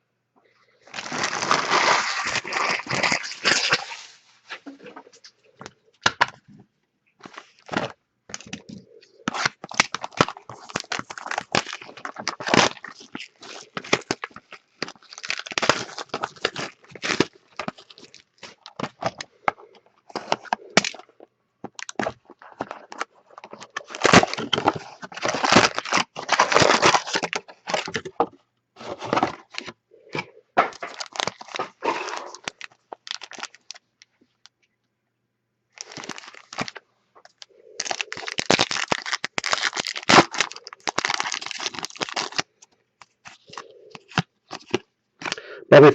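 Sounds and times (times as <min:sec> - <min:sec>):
wrappers crinkling and tearing: 0:00.9 - 0:04.2, 0:07.2 - 0:21.1, 0:21.7 - 0:28.1, 0:28.9 - 0:33.9, 0:35.8 - 0:45.4.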